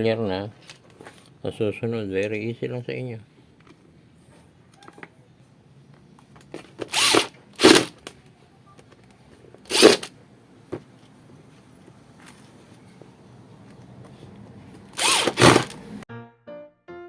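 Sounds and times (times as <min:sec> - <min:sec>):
power drill bursts: 0:06.8 - 0:08.0, 0:09.7 - 0:10.1, 0:15.0 - 0:15.9.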